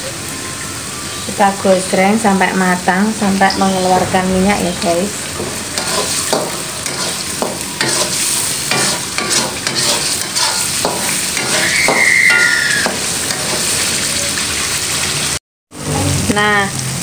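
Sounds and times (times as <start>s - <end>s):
metal spatula scraping a pan: 3.5s - 14.0s
spice paste sizzling in oil: 4.8s - 15.4s
brief high squeal: 11.5s - 12.9s.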